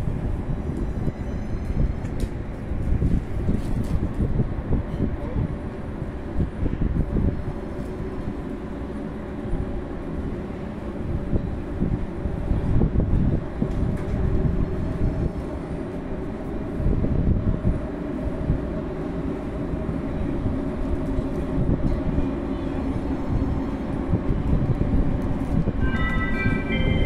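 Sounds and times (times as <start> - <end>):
high train squeal: 0.4 - 3.6, 25.6 - 27.0.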